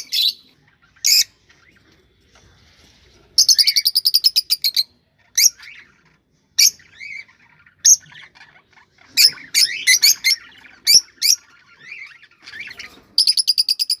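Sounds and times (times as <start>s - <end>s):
soft warbling chatter: 0.0s - 14.0s
cockatiels whistled calls: 9.2s - 14.0s.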